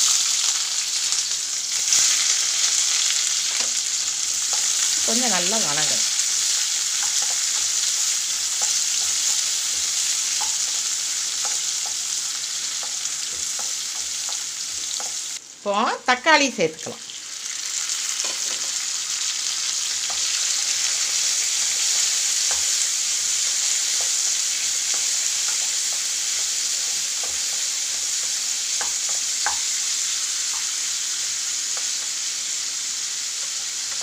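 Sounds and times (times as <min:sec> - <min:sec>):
vegetables sizzling in hot oil: 0:00.0 - 0:34.0
spatula clicking against pan: 0:27.1 - 0:29.8.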